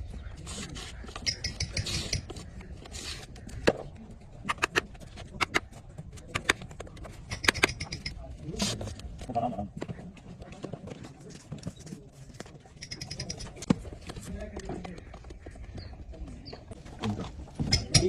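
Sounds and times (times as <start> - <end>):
sharp knocks and clicks: 6.3 - 8.2, 17.6 - 18.0.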